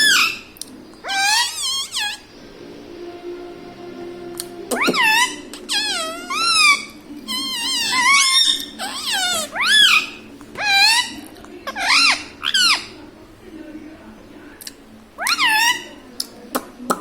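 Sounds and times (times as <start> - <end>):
parrot high-pitched calls: 0.0 - 2.4, 4.7 - 12.9, 15.2 - 15.9.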